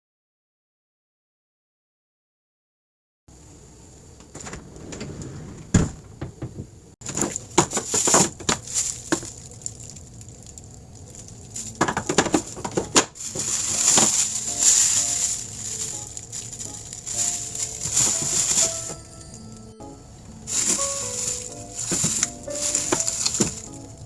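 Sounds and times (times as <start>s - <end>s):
plastic packaging rustling: 7.0s - 24.0s.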